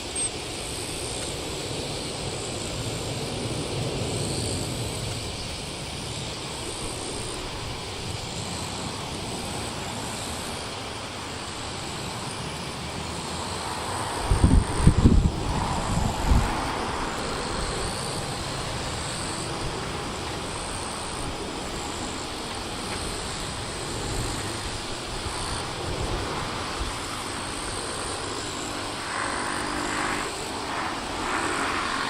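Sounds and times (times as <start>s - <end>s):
jet engines rumbling: 0.0s - 32.0s
wind thumps on microphone: 14.1s - 18.0s.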